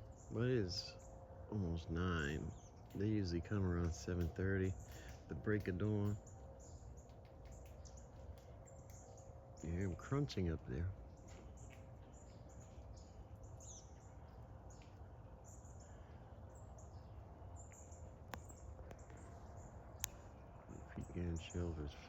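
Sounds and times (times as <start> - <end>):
bird chirps: 0.0 - 22.0
sharp clicks: 17.7 - 19.3, 20.0 - 20.3.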